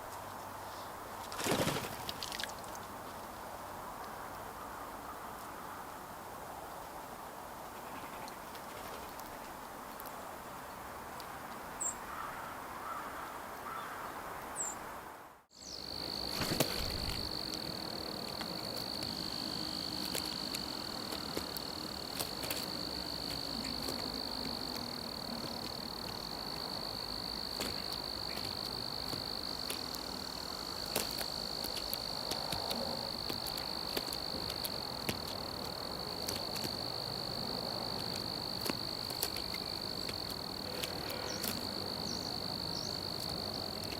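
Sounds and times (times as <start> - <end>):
cricket trilling: 15.5 - 43.9.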